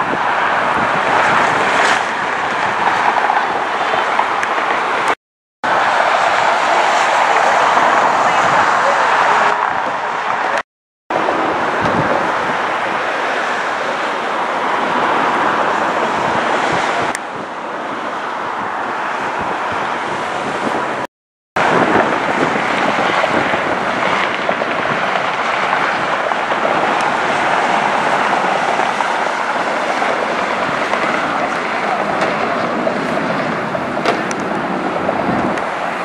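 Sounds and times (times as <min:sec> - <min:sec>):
jet airliner engine rushing: 0:00.0 - 0:20.8.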